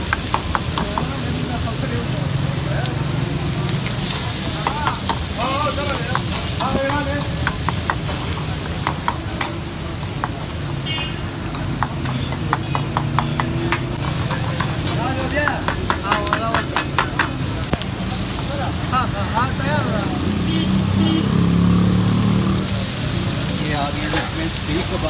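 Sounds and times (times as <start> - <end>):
food sizzling in woks: 0.0 - 25.0
metal ladle clinking on pans: 4.0 - 19.0.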